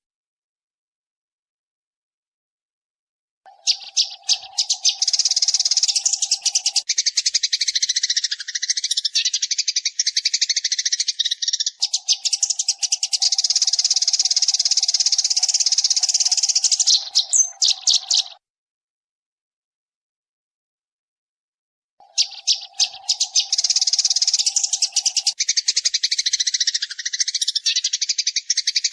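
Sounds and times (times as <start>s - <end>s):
sparrows chirping: 3.5s - 18.4s, 22.0s - 28.9s.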